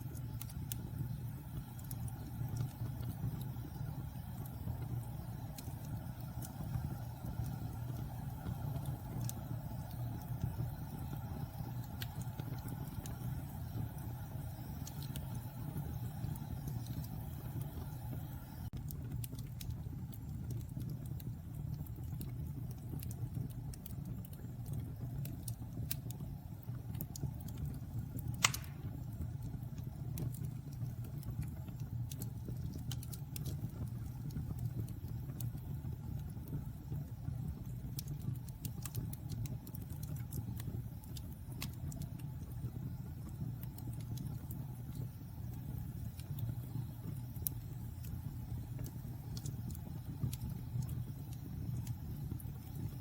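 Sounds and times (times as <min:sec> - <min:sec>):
fire crackles: 0:00.0 - 0:53.0
fire rumbling in fireplace: 0:00.0 - 0:53.0
sharp loud pop: 0:28.4 - 0:28.8.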